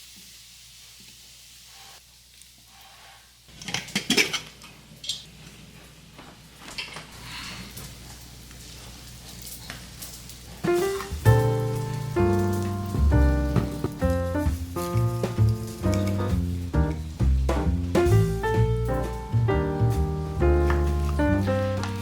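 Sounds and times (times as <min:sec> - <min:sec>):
steady low hiss: 0:10.0 - 0:22.0.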